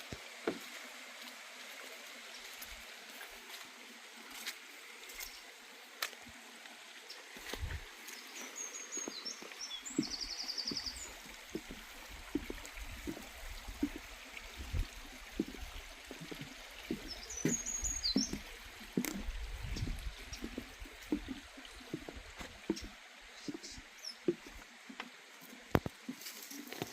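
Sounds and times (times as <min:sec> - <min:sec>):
small bird chirping: 0:08.5 - 0:11.2, 0:16.9 - 0:18.5.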